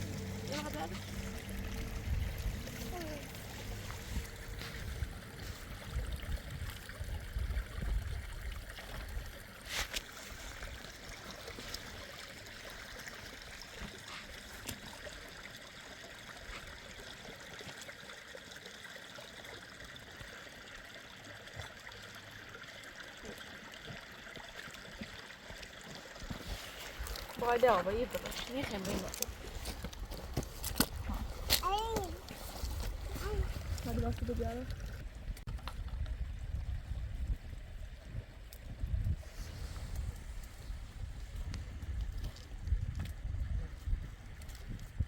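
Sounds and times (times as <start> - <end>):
low rumbling: 0.0 - 8.5
running water: 0.0 - 45.0.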